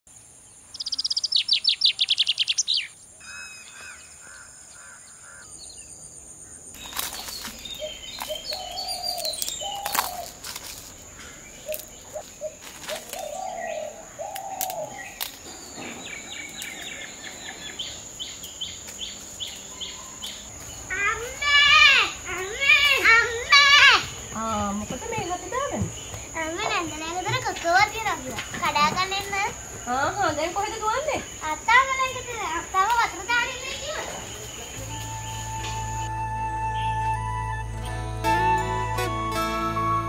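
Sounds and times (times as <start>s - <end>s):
birds chirping: 0.1s - 37.9s.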